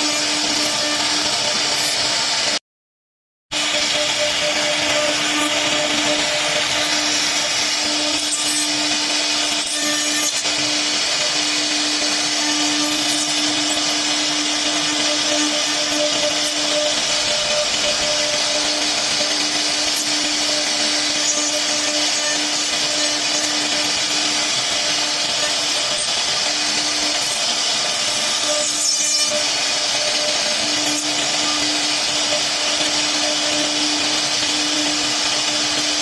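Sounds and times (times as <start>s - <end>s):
router spindle cutting wood: 0.0s - 2.6s, 3.5s - 36.0s.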